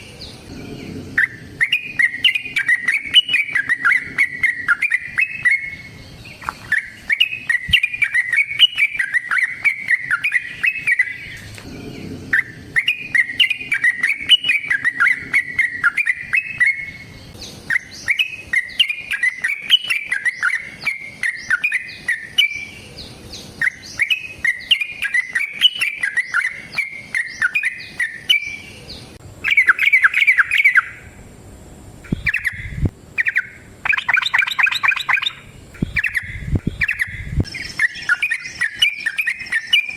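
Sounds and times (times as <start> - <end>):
bird singing bubbly chattering: 0.0 - 31.2, 32.0 - 39.9.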